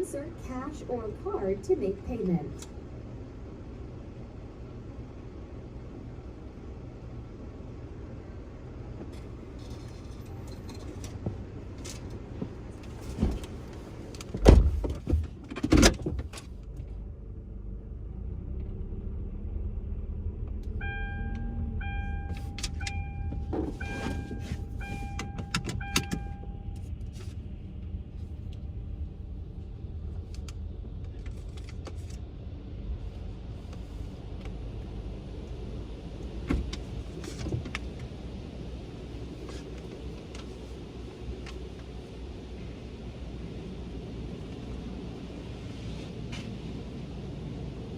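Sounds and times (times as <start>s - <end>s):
car idling: 0.0s - 45.6s
short electronic beeps: 20.8s - 26.8s.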